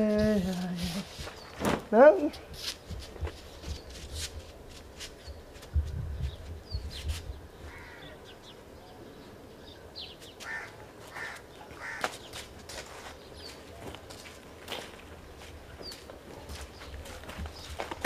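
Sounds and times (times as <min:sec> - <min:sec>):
harsh bird calls: 0:06.3 - 0:12.4.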